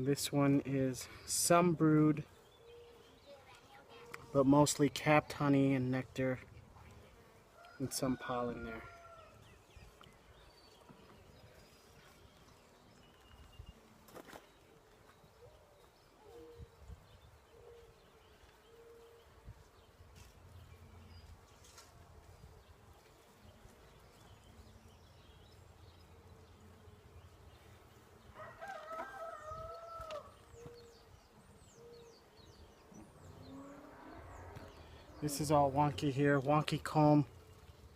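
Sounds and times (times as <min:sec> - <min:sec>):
rooster crowing: 0:07.6 - 0:09.4, 0:28.3 - 0:30.4.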